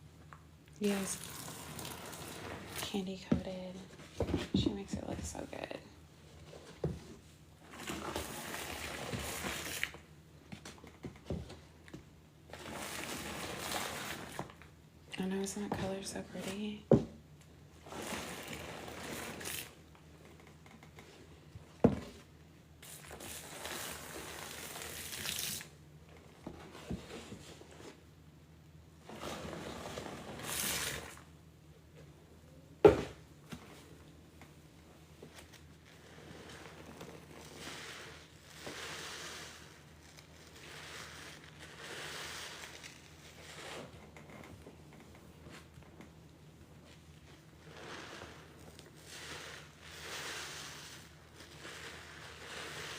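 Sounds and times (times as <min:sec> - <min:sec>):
soapy sponge squeezed squishing: 0:00.8 - 0:02.9, 0:07.7 - 0:10.1, 0:12.5 - 0:14.6, 0:17.9 - 0:19.8, 0:22.8 - 0:25.7, 0:35.4 - 0:44.0, 0:46.8 - 0:52.9.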